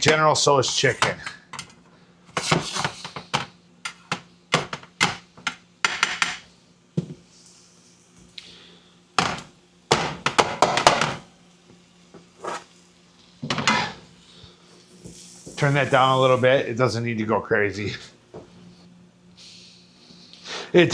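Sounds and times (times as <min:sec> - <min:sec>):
spatula scraping a pan: 0:02.4 - 0:03.3, 0:12.4 - 0:12.7, 0:13.5 - 0:14.0.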